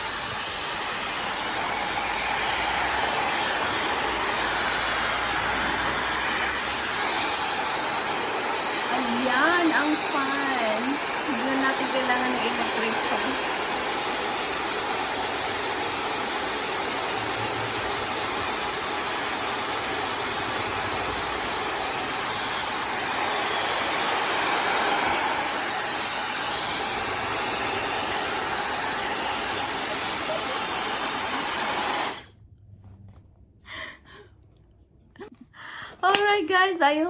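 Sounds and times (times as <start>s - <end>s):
hair dryer blowing: 0.0s - 32.3s.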